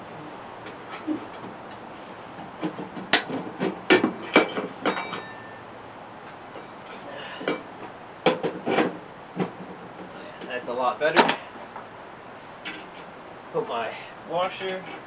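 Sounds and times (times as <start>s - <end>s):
metal knocks and clanks: 2.4s - 5.6s, 7.4s - 10.1s.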